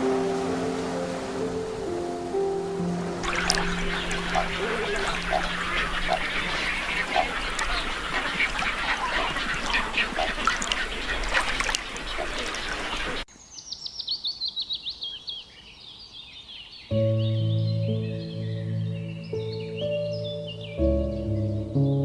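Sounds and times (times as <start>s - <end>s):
soft music: 0.0s - 9.8s, 16.9s - 22.0s
waterfowl honking: 0.0s - 13.2s
small bird chirping: 3.2s - 21.5s.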